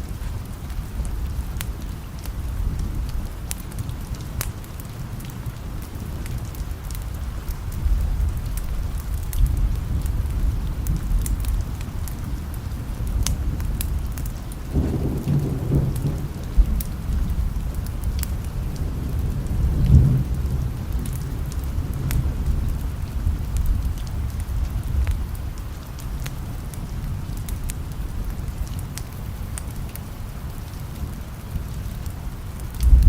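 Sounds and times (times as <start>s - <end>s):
steady rain: 0.0s - 33.0s
thunder rumbling: 5.7s - 25.7s, 32.6s - 33.0s.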